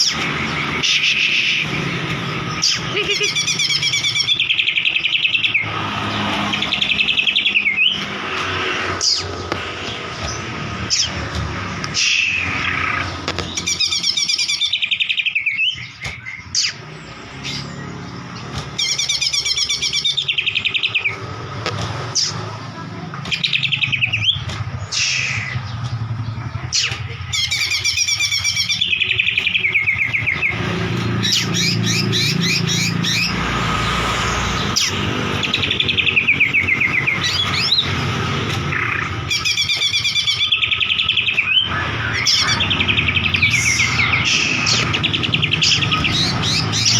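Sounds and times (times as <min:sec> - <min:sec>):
bird singing whistles and trills: 0:00.0 - 0:08.2, 0:12.0 - 0:18.1, 0:18.8 - 0:21.3, 0:27.3 - 0:33.4, 0:38.7 - 0:46.9.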